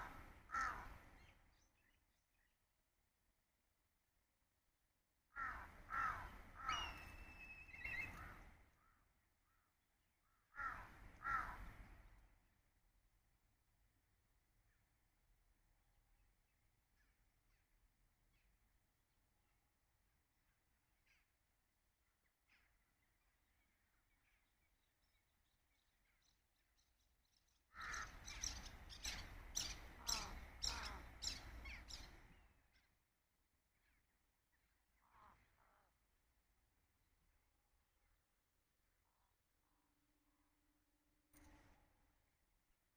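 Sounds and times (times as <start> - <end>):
crow cawing: 0.0 - 1.0, 5.4 - 7.2, 10.3 - 11.7, 27.7 - 28.4, 30.0 - 31.3
bird harsh calls: 5.4 - 8.5, 27.8 - 32.4
faint distant bird chirping: 6.0 - 10.5, 20.4 - 36.2.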